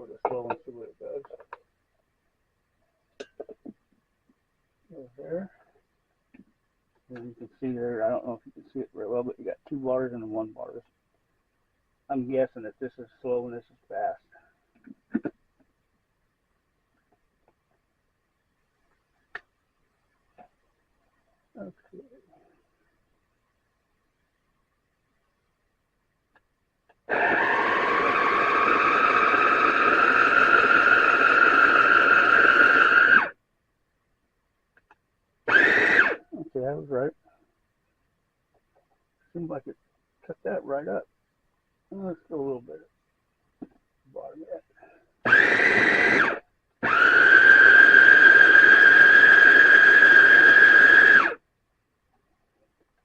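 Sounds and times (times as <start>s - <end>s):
food processor whirring: 27.1s - 33.4s, 35.5s - 36.2s, 45.3s - 51.4s.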